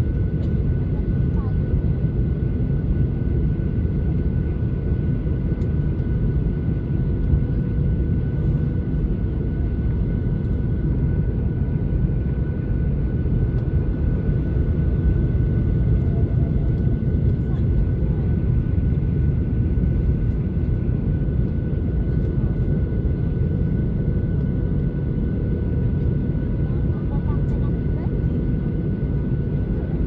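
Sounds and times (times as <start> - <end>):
airplane cabin rumble: 0.0 - 30.0.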